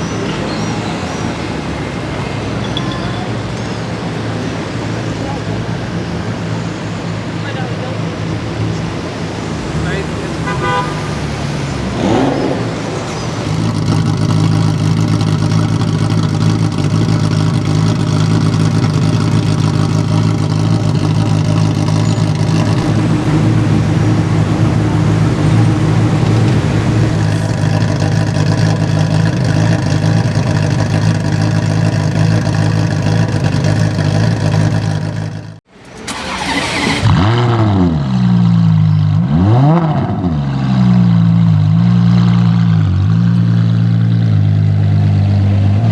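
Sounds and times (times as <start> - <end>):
car engine idling: 0.0 - 39.6
car engine revving in blips: 8.8 - 45.9.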